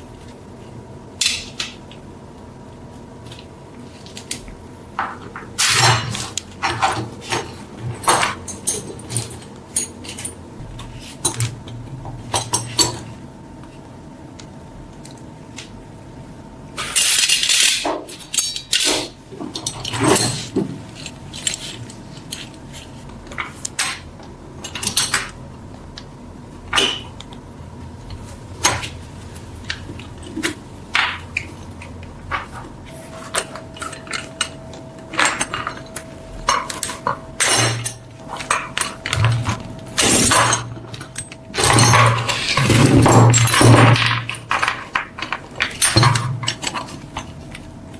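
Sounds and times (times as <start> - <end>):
metal clinks and knocks: 32.3 - 47.7.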